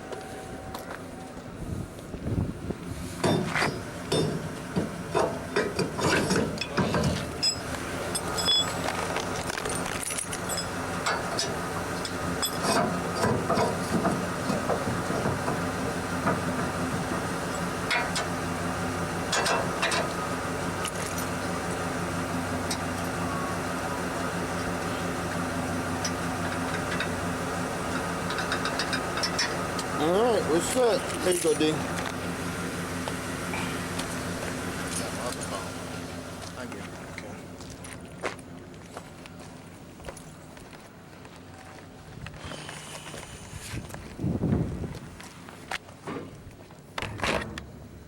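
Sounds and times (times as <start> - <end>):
vehicle engine idling: 0.0 - 47.0
knocks clicks and rattles: 3.2 - 18.3, 19.3 - 20.2, 27.9 - 30.0.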